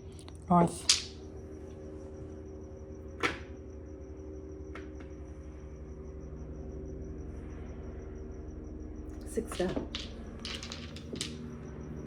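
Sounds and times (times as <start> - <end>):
steady low hum: 0.0 - 12.0
mahjong tile clacking on table: 0.8 - 1.2, 9.4 - 11.4.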